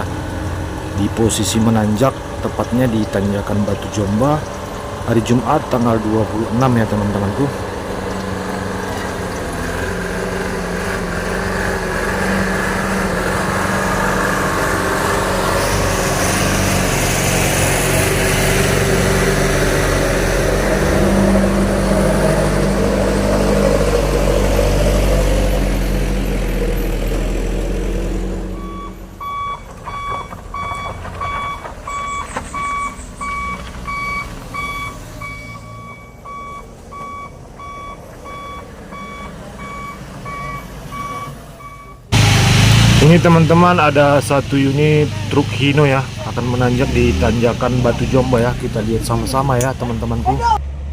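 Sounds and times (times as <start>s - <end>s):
truck diesel engine running: 0.0s - 50.9s
truck reversing alarm beeping: 27.8s - 49.3s.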